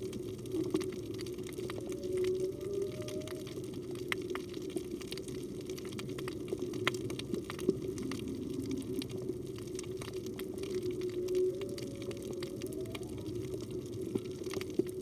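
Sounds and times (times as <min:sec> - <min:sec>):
low underwater hum: 0:00.0 - 0:15.0
whale song: 0:00.0 - 0:15.0.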